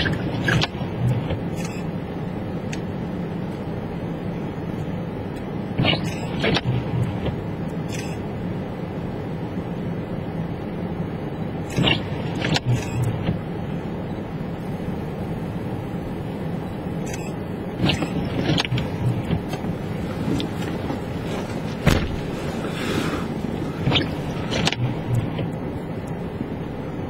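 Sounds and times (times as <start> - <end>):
engine and tyre rumble: 0.0 - 27.0
knocks and clicks: 23.8 - 26.2.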